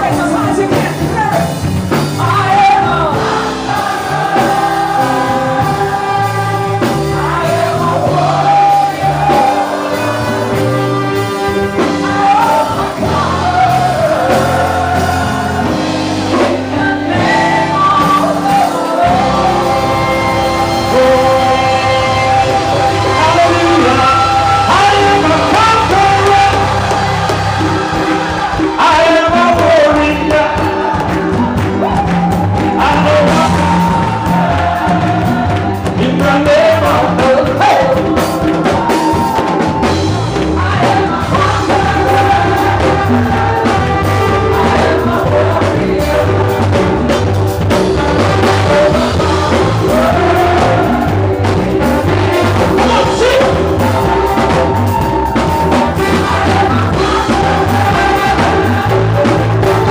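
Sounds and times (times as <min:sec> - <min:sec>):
band with bass and drums: 0:00.0 - 0:59.9
voices singing: 0:00.0 - 0:59.9.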